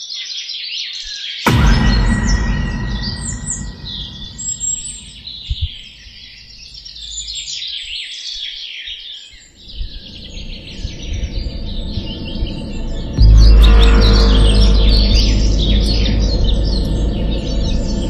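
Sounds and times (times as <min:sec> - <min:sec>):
short low thumps: 0:01.5 - 0:06.1
low rumble: 0:01.5 - 0:07.4, 0:09.6 - 0:18.0.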